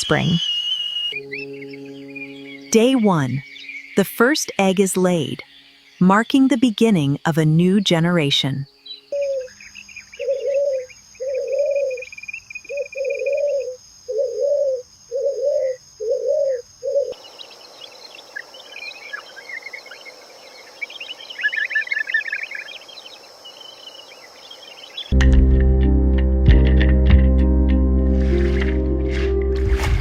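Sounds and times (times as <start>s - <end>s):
small birds chirping: 0.0s - 25.1s
dove cooing: 9.1s - 17.2s.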